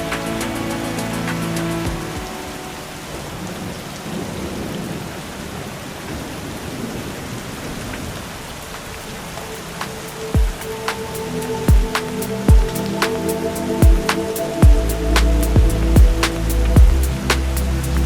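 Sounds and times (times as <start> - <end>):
steady rain falling: 0.0 - 18.0
deep kick drum: 10.4 - 10.6, 11.7 - 12.8, 13.8 - 14.9, 15.6 - 17.2.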